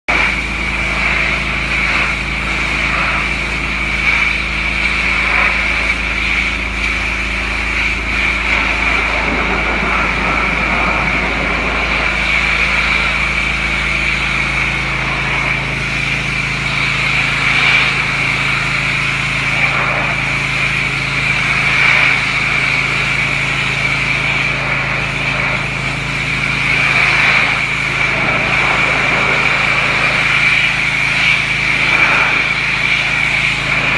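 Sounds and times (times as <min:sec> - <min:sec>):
pressure washer engine running: 0:00.1 - 0:33.9
water spray hissing: 0:00.3 - 0:33.9.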